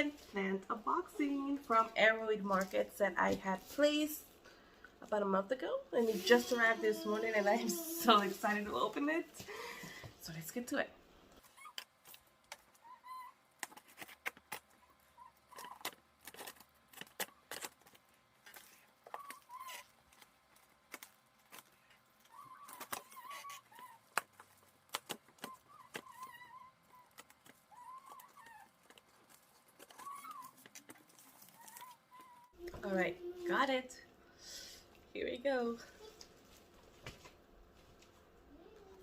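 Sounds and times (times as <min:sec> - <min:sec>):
faint squeaky chirps: 0:12.8 - 0:13.4, 0:19.1 - 0:19.9, 0:25.4 - 0:28.8, 0:29.8 - 0:32.6.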